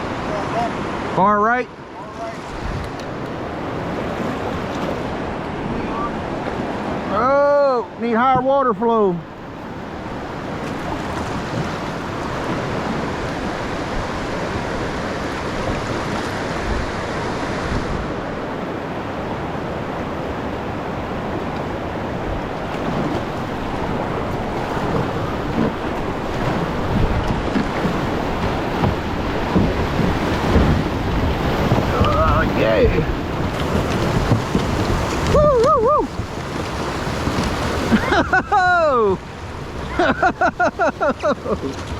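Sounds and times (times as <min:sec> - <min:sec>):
river water rushing: 0:00.0 - 0:41.9
wind on microphone: 0:02.4 - 0:07.1, 0:09.3 - 0:41.9
low thumps: 0:24.9 - 0:37.6.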